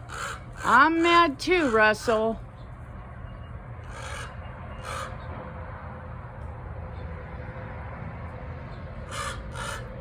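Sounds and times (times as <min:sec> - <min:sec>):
crow cawing: 0:00.0 - 0:00.9, 0:03.9 - 0:05.3, 0:09.0 - 0:10.0
low outdoor rumble: 0:00.0 - 0:10.0.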